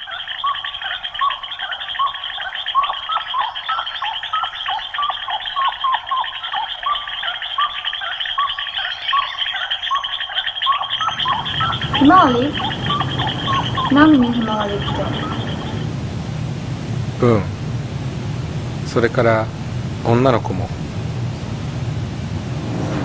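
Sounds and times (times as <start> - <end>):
bird call notes: 0.0 - 15.8
insect drone: 0.0 - 23.0.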